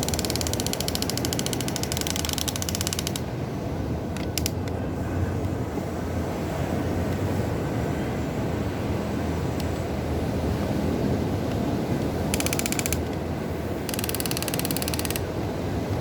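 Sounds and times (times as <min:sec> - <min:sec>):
toy excavator gear clicking: 0:00.0 - 0:03.3, 0:04.2 - 0:04.8, 0:12.3 - 0:13.2, 0:13.9 - 0:15.3.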